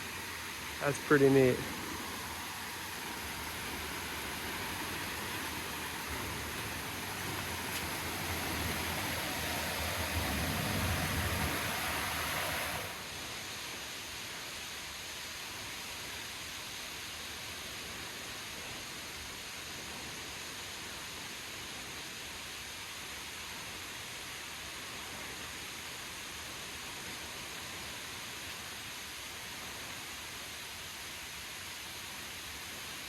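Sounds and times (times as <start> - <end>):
river water rushing: 0.0 - 13.3.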